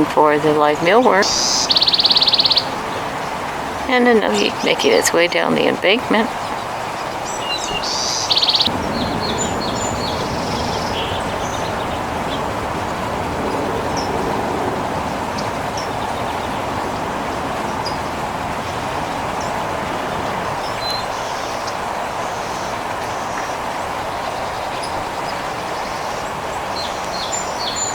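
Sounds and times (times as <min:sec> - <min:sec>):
steady rushing noise: 0:00.0 - 0:27.9
faint bird chirps: 0:01.2 - 0:02.7, 0:07.3 - 0:12.0.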